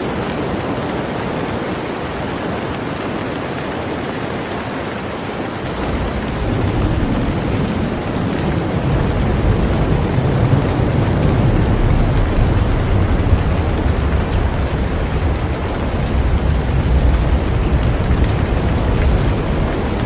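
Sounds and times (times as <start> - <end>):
heavy rain on a boat: 0.0 - 20.0
deep low rumble: 5.7 - 20.0.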